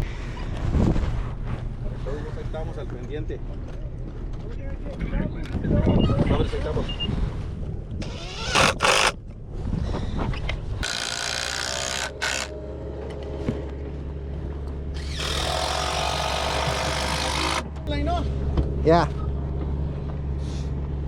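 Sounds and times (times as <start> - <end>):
low engine drone: 7.7 - 21.0.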